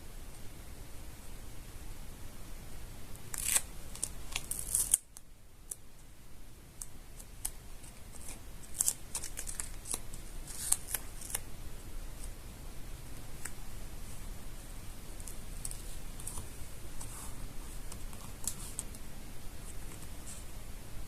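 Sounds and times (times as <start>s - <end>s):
paper crinkling: 3.3s - 5.2s, 7.2s - 11.4s, 15.2s - 19.0s.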